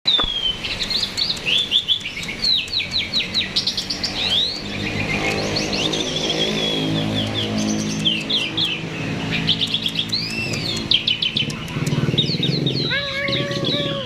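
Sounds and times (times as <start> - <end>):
starling singing chirps and whistles: 0.1 - 14.0
low engine-like hum: 0.2 - 14.0.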